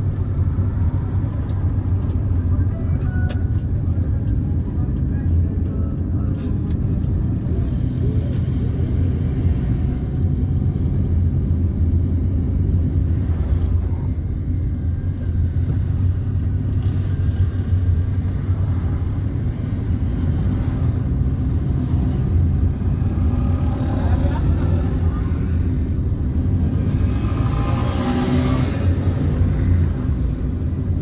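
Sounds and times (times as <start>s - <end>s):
car driving on road: 0.0s - 31.0s.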